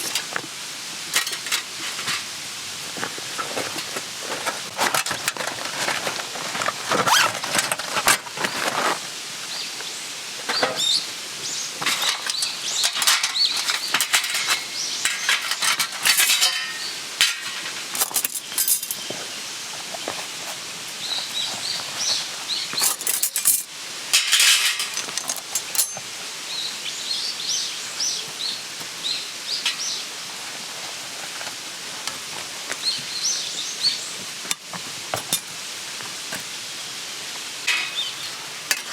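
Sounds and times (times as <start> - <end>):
rustles: 0.0 - 38.9
small birds chirping: 9.5 - 15.8, 18.3 - 23.5, 25.6 - 30.6, 32.7 - 34.3, 37.7 - 38.4.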